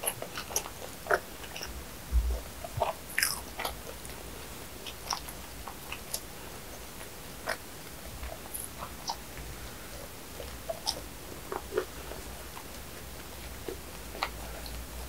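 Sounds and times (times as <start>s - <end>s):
wet mouth chewing clicks: 0.0s - 1.7s, 8.2s - 9.5s, 13.6s - 14.8s.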